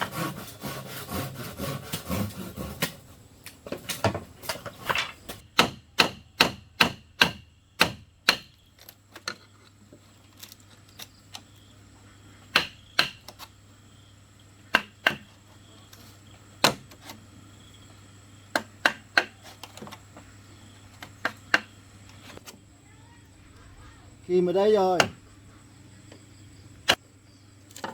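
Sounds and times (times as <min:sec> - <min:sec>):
tool striking bamboo: 0:00.0 - 0:03.0, 0:03.6 - 0:08.6, 0:12.5 - 0:13.5, 0:14.7 - 0:15.4, 0:16.6 - 0:17.2, 0:18.5 - 0:20.0, 0:21.0 - 0:22.5, 0:24.9 - 0:25.2.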